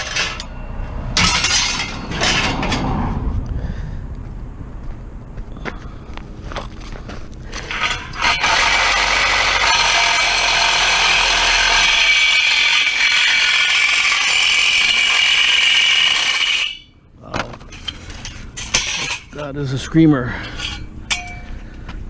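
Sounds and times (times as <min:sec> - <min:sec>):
power tool screaming on metal: 0:07.6 - 0:16.8.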